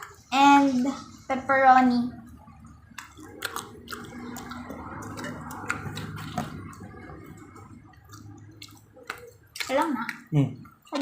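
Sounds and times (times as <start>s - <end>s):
low room hum: 0.0s - 11.0s
person chewing food: 2.3s - 11.0s.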